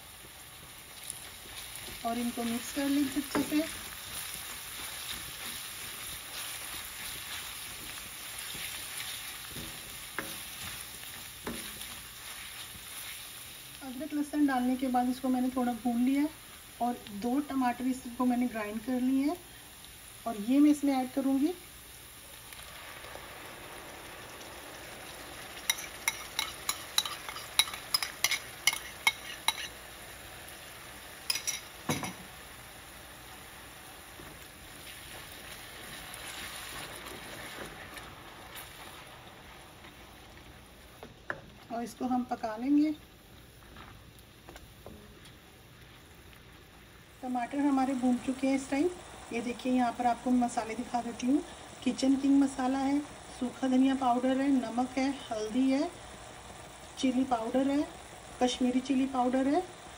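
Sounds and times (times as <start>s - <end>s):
paste sizzling in hot oil: 0.0s - 59.9s
spatula scraping pan: 1.4s - 13.3s, 25.7s - 29.8s.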